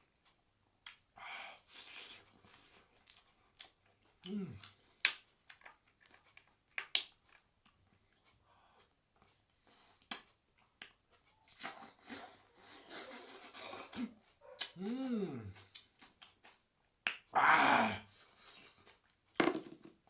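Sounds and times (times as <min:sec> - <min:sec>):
mouth clicks and lip smacks: 0:00.8 - 0:01.1, 0:09.2 - 0:17.3
wet chewing: 0:01.7 - 0:08.4.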